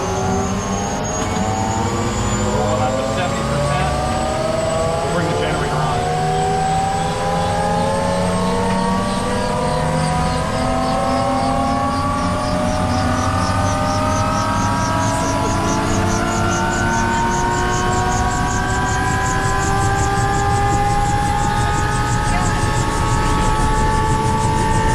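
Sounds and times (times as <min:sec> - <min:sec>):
helicopter turbine whine: 0:00.0 - 0:24.9
rotor pulsing: 0:00.0 - 0:24.9.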